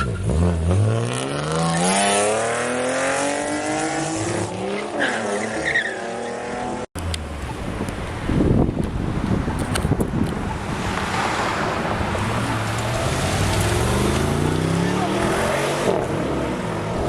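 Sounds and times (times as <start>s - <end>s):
car engine accelerating: 6.4s - 17.0s.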